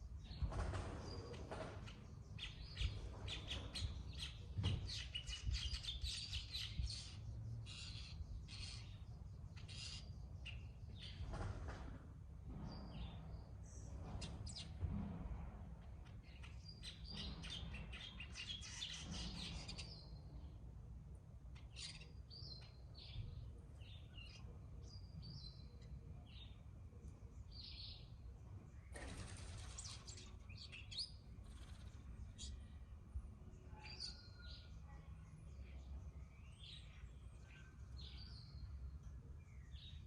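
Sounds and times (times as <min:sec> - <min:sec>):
birds chirping and chattering: 0:00.0 - 0:14.9, 0:15.7 - 0:40.0.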